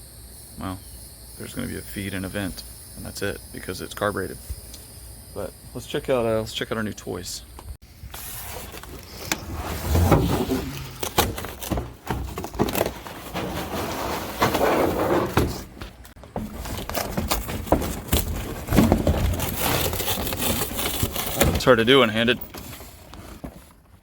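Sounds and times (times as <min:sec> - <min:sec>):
parts rustling and scraping: 0:07.9 - 0:24.0.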